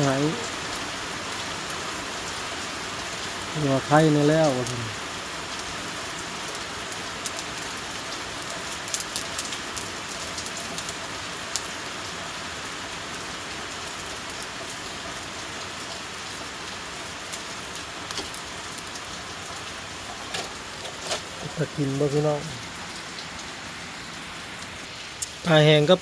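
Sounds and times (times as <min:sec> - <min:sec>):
heavy rain falling: 0:00.0 - 0:26.0
sharp drip ticks: 0:24.6 - 0:25.5.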